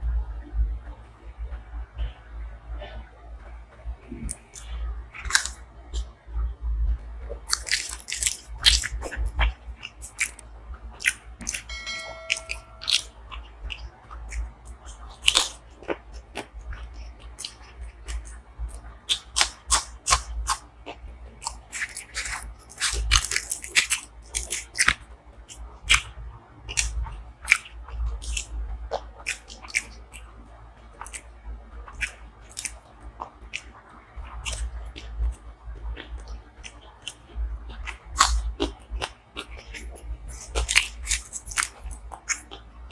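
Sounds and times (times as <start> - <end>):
food crunching: 4.3 - 6.1, 7.5 - 10.4, 11.0 - 11.7, 15.1 - 18.3, 19.1 - 20.7, 21.4 - 25.0, 26.7 - 30.2, 31.0 - 31.3, 31.9 - 35.2, 36.0 - 42.6
wet chewing and mouth smacking: 4.3 - 6.1, 7.5 - 10.4, 11.0 - 11.7, 13.7 - 30.3, 31.0 - 31.3, 31.9 - 35.4, 36.0 - 42.9
short pitched tone: 11.7 - 13.1.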